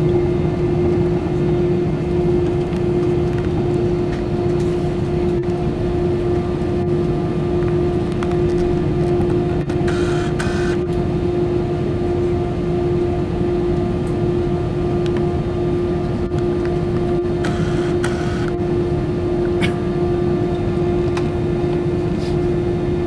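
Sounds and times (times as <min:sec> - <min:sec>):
aircraft cabin engine drone: 0:00.0 - 0:23.0
steady hum tone: 0:09.6 - 0:10.9, 0:17.1 - 0:19.4.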